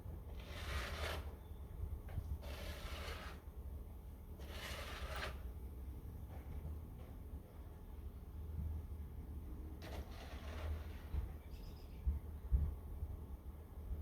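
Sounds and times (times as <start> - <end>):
snow shovel scraping snow: 0.4 - 1.3, 2.4 - 3.4, 4.4 - 5.4, 9.8 - 11.2.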